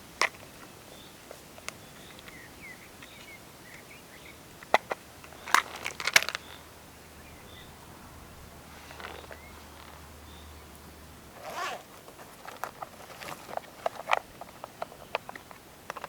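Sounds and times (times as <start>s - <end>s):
faint bird chirps: 0.8s - 4.5s, 6.3s - 7.8s, 8.8s - 10.8s
crackling crinkling clicks: 4.6s - 6.7s, 11.4s - 16.0s
sharp handling clicks: 4.6s - 6.7s.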